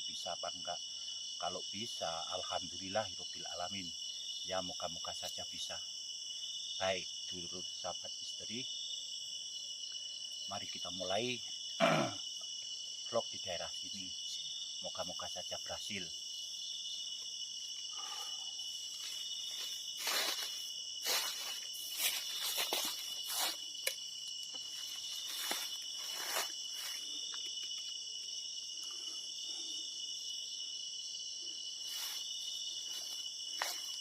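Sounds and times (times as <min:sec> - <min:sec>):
insects chirping: 0:00.0 - 0:34.0.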